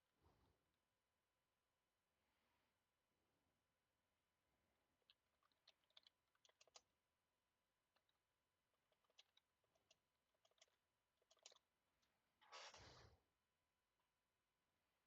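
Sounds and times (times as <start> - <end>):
keyboard typing: 8.8 - 11.6.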